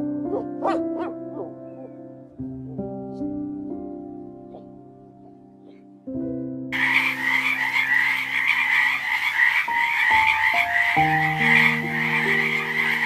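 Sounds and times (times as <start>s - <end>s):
soft piano notes: 0.0s - 6.7s
frogs trilling: 6.8s - 13.0s.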